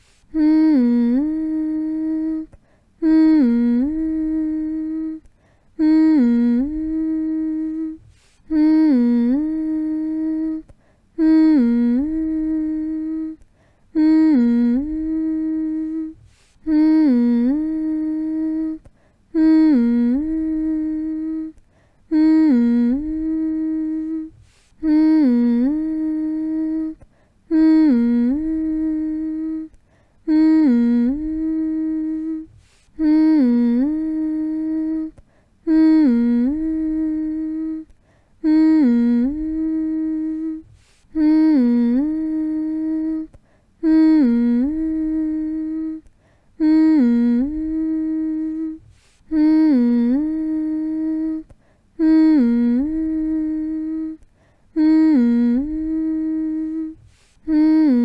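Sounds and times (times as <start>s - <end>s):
person humming: 0.0s - 58.0s.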